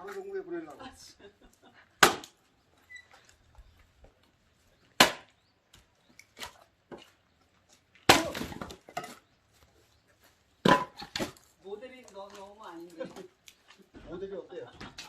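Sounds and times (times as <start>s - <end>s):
axe chopping firewood: 2.0s - 2.4s, 5.0s - 5.4s, 8.0s - 9.3s, 10.6s - 11.5s.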